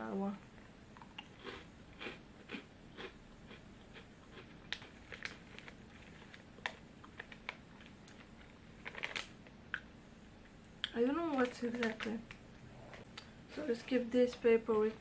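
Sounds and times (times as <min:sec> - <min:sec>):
chewing snack: 0:01.0 - 0:09.8
paper packet crackling: 0:04.7 - 0:09.4, 0:11.2 - 0:12.4.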